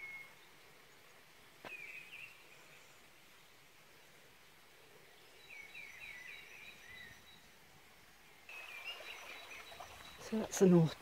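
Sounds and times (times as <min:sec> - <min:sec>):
low outdoor hush: 0:00.0 - 0:11.0
songbird chirping: 0:00.0 - 0:11.0.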